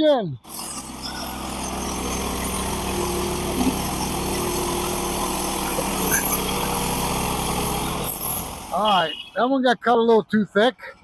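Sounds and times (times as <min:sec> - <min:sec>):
band blade sawing log: 0:00.5 - 0:09.2
sawmill engine running: 0:00.5 - 0:09.4.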